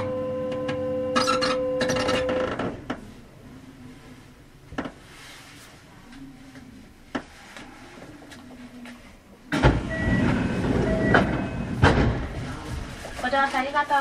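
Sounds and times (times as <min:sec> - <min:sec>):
train rumble and rattle: 0:09.7 - 0:14.0.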